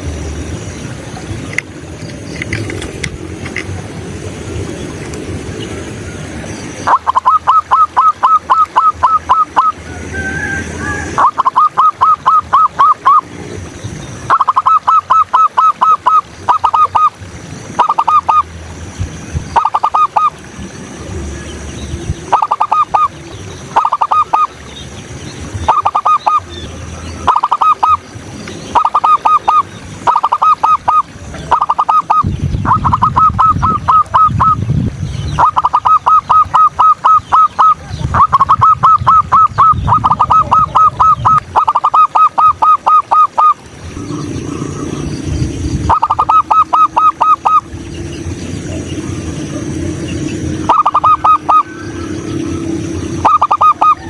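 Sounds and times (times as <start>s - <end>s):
dove cooing: 27.2s - 28.0s, 35.4s - 54.0s
small birds chirping: 43.3s - 54.0s.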